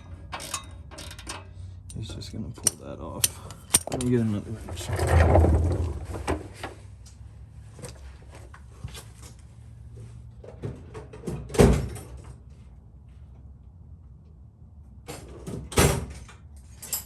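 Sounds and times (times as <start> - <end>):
hand tools clicking and knocking: 0.3 - 4.3.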